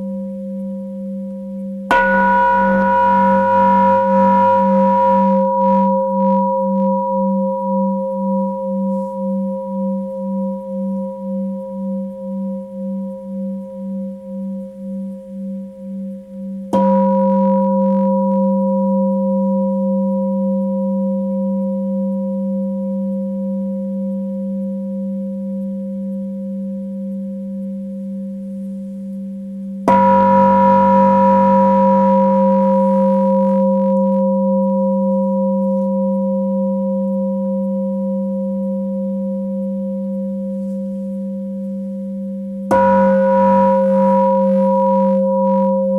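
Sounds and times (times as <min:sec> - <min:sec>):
singing bowl ringing: 0:00.0 - 0:26.0, 0:29.9 - 0:45.9
singing bowl strike: 0:01.9 - 0:14.1, 0:16.7 - 0:19.4, 0:29.9 - 0:36.4, 0:42.7 - 0:45.9.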